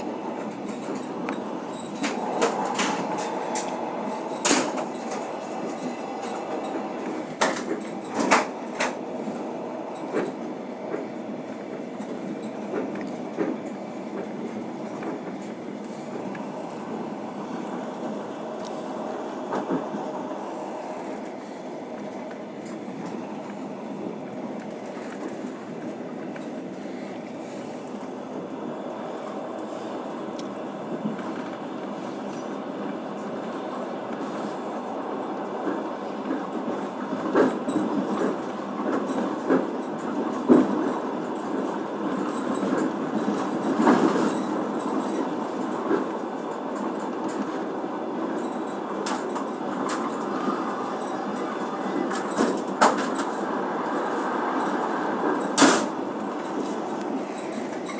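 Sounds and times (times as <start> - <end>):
train knock: 0.0 - 9.1
train wheels rumbling on rails: 0.0 - 57.9.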